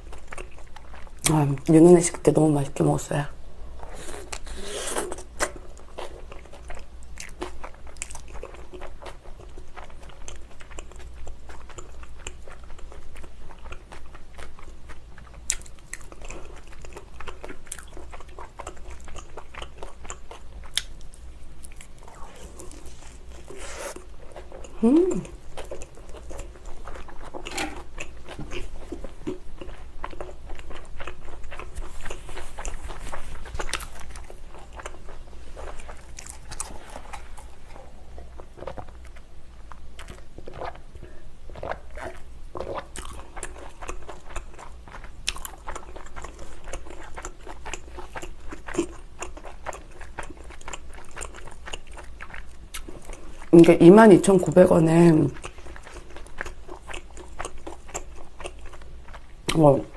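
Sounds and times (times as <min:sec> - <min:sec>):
chewing and biting pizza: 0:00.0 - 0:01.3, 0:03.9 - 0:53.6, 0:55.3 - 0:59.9.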